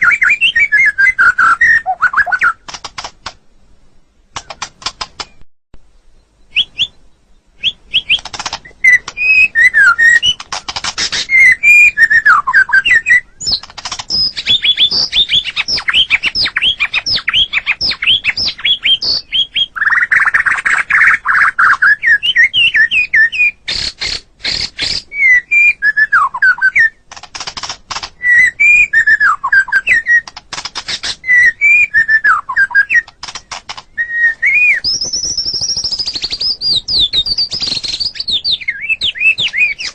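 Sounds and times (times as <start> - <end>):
bird singing whistled phrases: 0.0 - 2.6, 6.2 - 10.4, 11.1 - 23.6, 24.5 - 27.0, 28.2 - 30.3, 31.2 - 33.2, 33.9 - 39.9
rapid clicking bird chips: 2.2 - 3.4, 4.3 - 5.4, 7.9 - 11.5, 13.4 - 21.5, 27.0 - 28.2, 30.0 - 31.4, 32.9 - 34.0, 34.6 - 38.5.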